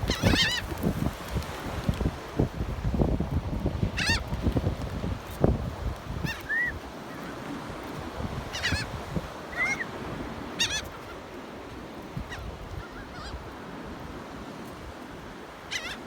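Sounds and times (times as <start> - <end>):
gulls calling: 0.0 - 0.8, 6.2 - 7.4, 8.5 - 11.3, 15.7 - 16.0.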